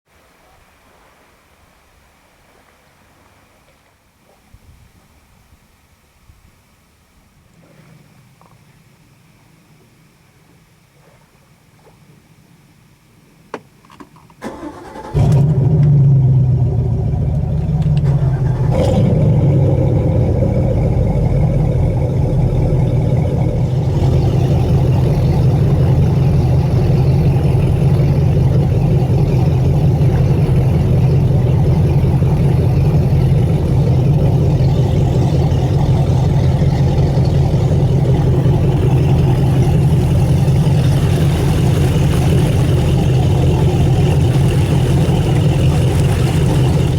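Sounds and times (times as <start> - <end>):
boat engine cranking and idling: 13.8 - 46.9
click: 17.8 - 18.1.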